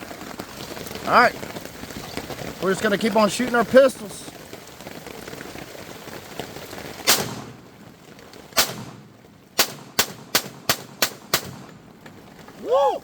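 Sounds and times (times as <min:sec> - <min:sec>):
pistol shots: 0:07.0 - 0:07.6, 0:08.6 - 0:11.8.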